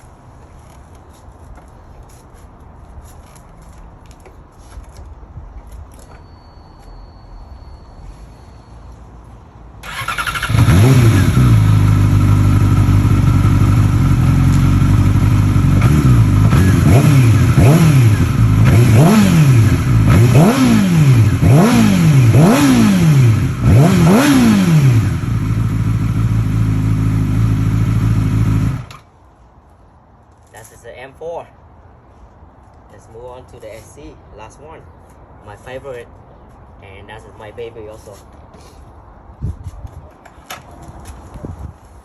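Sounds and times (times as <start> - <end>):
motorcycle engine idling and revving: 9.8 - 29.1.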